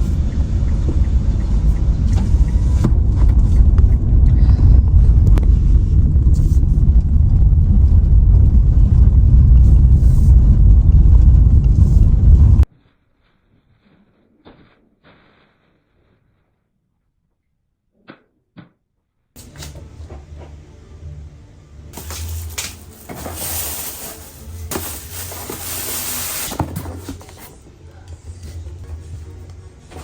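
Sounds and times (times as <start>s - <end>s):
steady low hum: 0.0s - 12.7s
cupboard opening or closing: 22.0s - 27.5s
household knocks and clatters: 22.0s - 27.6s.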